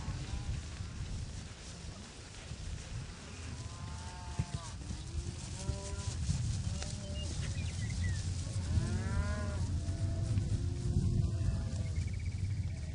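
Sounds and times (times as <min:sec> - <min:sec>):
cattle mooing: 0:08.7 - 0:11.8.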